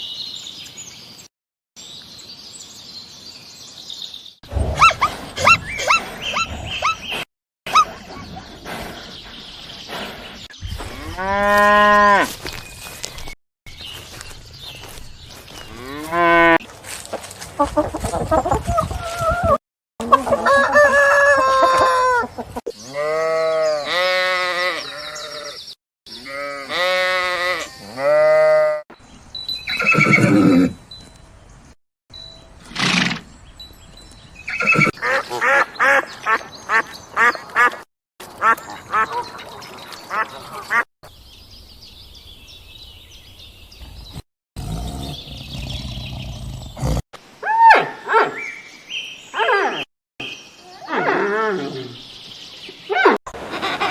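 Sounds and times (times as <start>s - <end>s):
farm animals calling: 4.6s - 12.6s, 17.6s - 28.8s, 34.5s - 40.8s.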